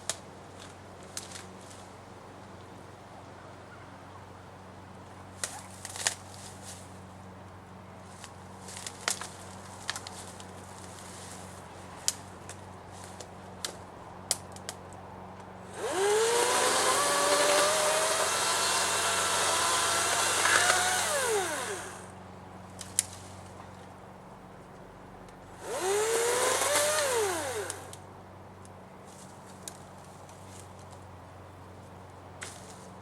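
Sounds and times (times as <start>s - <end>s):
electric chainsaw whining: 15.7s - 22.1s, 25.6s - 28.0s.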